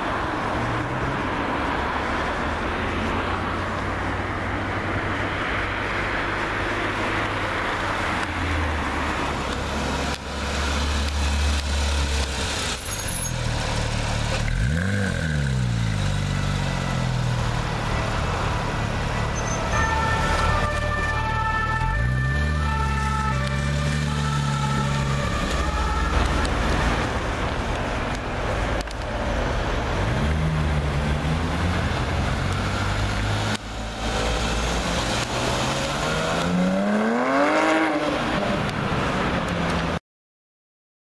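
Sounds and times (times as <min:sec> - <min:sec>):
engine revving: 0:13.6 - 0:17.2, 0:29.9 - 0:38.7
sports car accelerating hard: 0:34.4 - 0:38.6.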